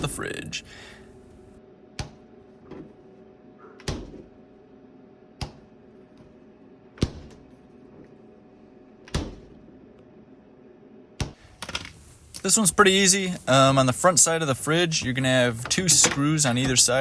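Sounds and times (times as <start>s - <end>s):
steady low hum: 0.0s - 17.0s
refrigerator doors thudding shut: 3.8s - 4.3s, 7.0s - 7.5s, 9.1s - 9.6s.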